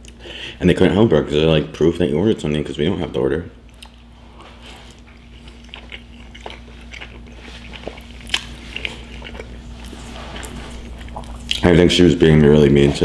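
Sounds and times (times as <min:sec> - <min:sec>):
person chewing food: 0:03.7 - 0:11.7.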